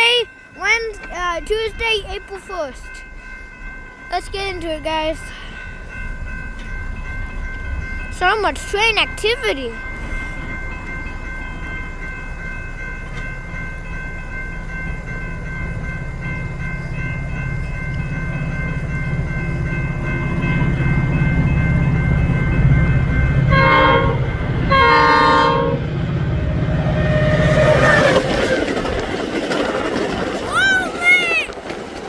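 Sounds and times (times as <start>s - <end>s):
train rumbling: 0.0s - 32.0s
train horn blasts: 23.5s - 28.4s.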